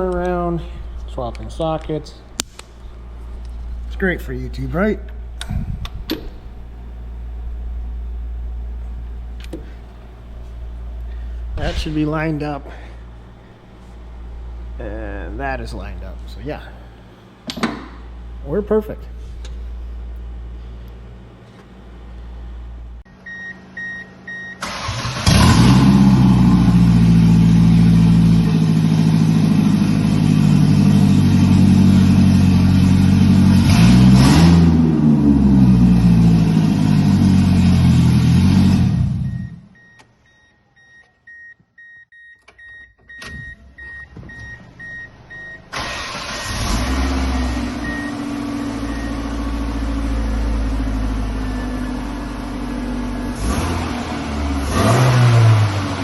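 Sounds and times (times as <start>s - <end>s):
car engine cranking and running: 24.6s - 39.9s, 43.1s - 56.0s.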